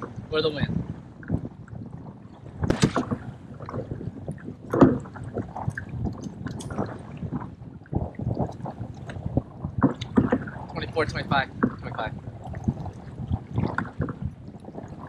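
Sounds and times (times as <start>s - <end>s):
water around a kayak: 0.0s - 15.0s
wind: 0.0s - 15.0s
knocks and clicks of fish handling: 4.6s - 5.2s.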